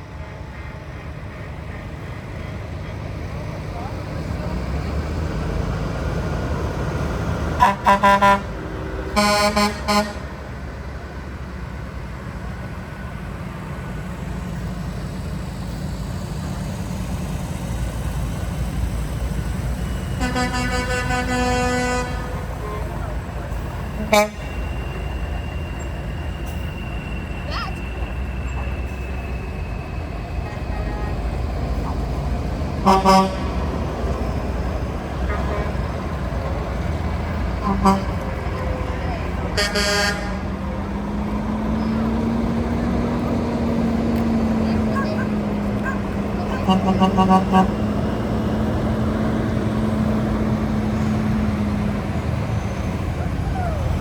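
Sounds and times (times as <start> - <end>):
low engine rumble: 0.0 - 54.0
vehicle horn toots: 7.6 - 8.5, 9.2 - 10.2, 20.2 - 23.1, 24.0 - 24.6, 32.8 - 33.5, 37.6 - 38.3, 39.6 - 40.5, 45.0 - 47.8.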